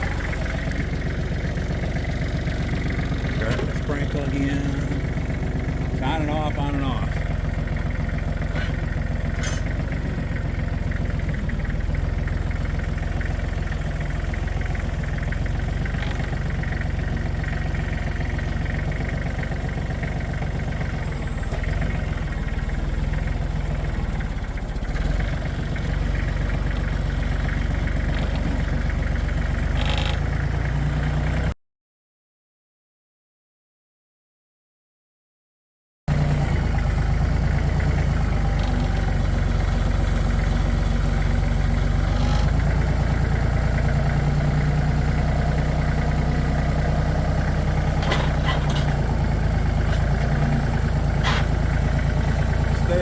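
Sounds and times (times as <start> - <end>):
tractor engine running: 0.0 - 31.6, 36.1 - 53.0.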